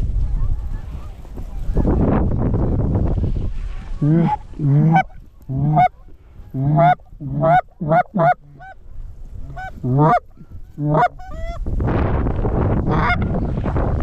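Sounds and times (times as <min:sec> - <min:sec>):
geese honking: 0:03.9 - 0:08.8, 0:09.4 - 0:11.6.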